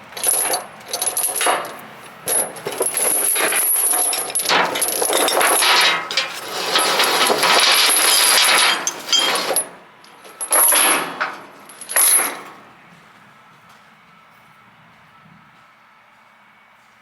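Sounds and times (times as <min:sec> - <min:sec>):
steel chains rattling: 0:00.0 - 0:12.7.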